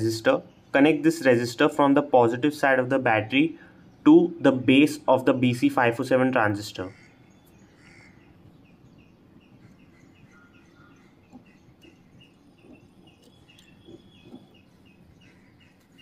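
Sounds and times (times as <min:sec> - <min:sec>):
faint small bird chirping: 0:07.0 - 0:16.0.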